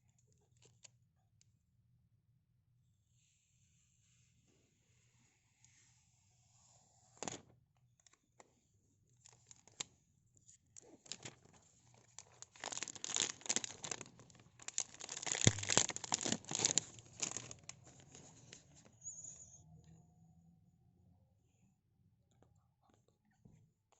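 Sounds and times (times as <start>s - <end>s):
packaging tearing and crinkling: 11.0s - 18.5s.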